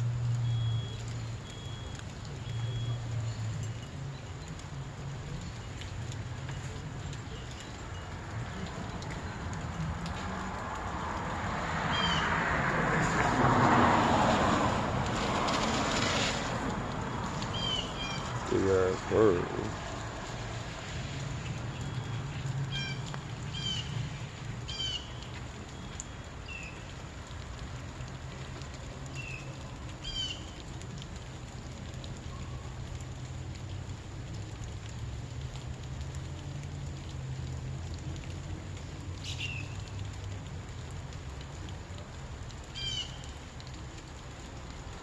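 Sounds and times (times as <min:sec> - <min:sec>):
broad rushing noise: 0:09.3 - 0:24.7.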